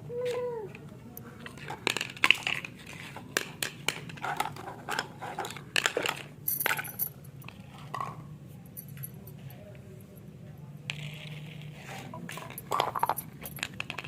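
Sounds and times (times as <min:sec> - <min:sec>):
toy pieces clicking and clattering: 0:01.5 - 0:07.9, 0:10.9 - 0:14.0.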